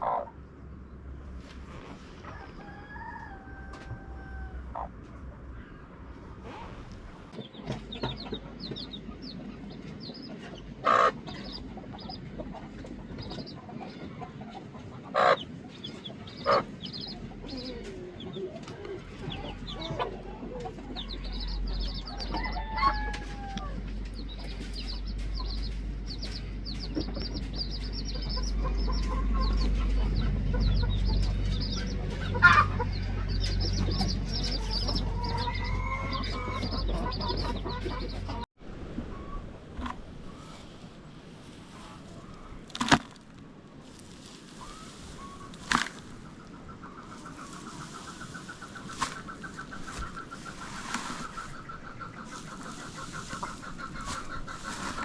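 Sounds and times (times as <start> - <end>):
chickens clucking: 0.0 - 0.4, 1.4 - 38.5, 43.8 - 55.0
low rumble: 3.9 - 41.3
chicken squawks: 10.8 - 12.1, 15.1 - 15.6, 16.4 - 17.6, 28.1 - 38.4.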